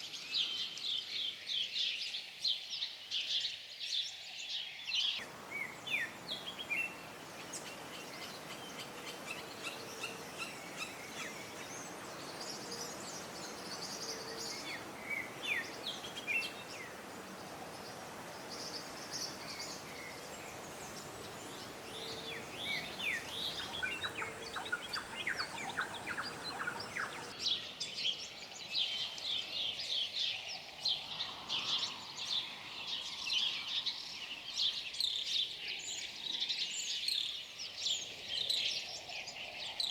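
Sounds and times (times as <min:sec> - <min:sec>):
small birds chirping: 0:00.0 - 0:27.7
wind-like hiss: 0:00.0 - 0:39.9.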